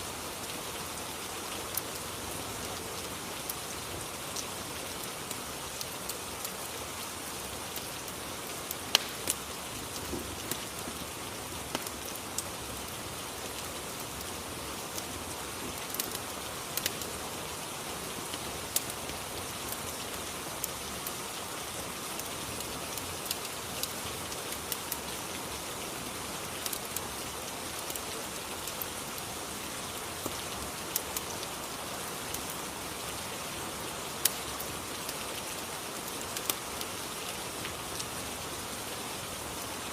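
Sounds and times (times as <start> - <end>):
falling rain hiss: 0.0 - 39.9
wood fire crackling and popping: 1.6 - 2.0, 7.7 - 14.2, 14.8 - 17.1, 18.3 - 20.8, 22.2 - 25.1, 26.4 - 27.0, 27.7 - 29.0, 30.2 - 31.4, 34.2 - 35.4, 36.0 - 37.8.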